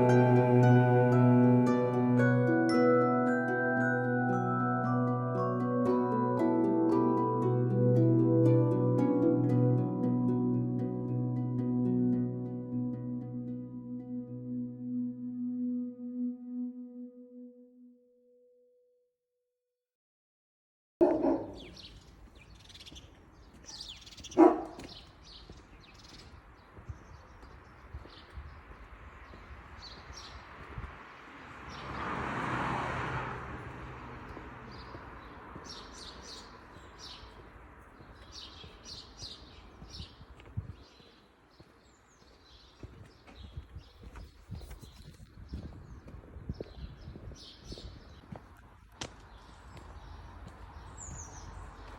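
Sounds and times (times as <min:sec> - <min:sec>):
birds chirping: 0:00.0 - 0:04.8, 0:21.0 - 0:28.4.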